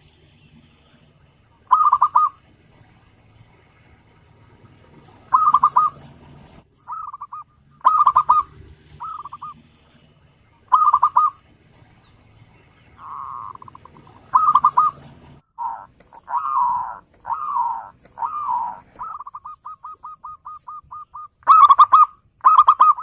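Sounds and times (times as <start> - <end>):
dove cooing: 1.6 - 2.4, 4.9 - 9.6, 10.7 - 11.4, 13.0 - 23.0.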